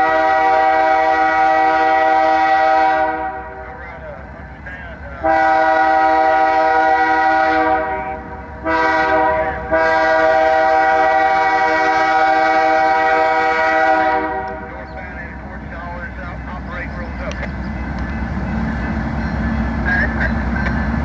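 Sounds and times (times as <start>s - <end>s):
train air horn blasts: 0.0s - 3.8s, 5.2s - 14.7s
low rumble of passing train: 0.0s - 21.0s.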